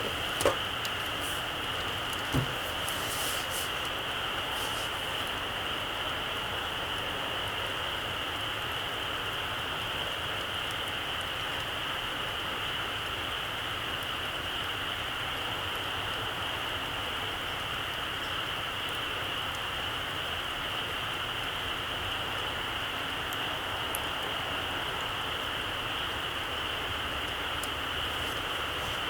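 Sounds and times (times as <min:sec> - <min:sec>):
steady hiss: 0:00.0 - 0:11.1, 0:17.7 - 0:29.0
campfire crackles: 0:00.0 - 0:29.0.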